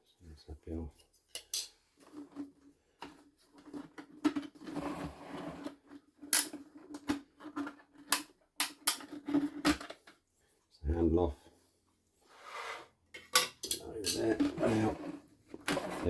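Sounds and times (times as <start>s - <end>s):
plastic parts clicking and knocking: 1.3s - 4.7s, 5.7s - 10.2s, 13.2s - 14.6s
plastic scraping: 2.0s - 8.2s, 14.0s - 16.0s.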